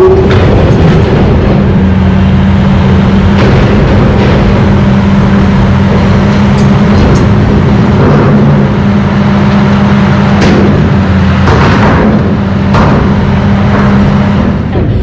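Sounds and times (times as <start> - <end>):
heavy diesel engine running: 0.0 - 15.0
sharp knocks: 9.7 - 15.0.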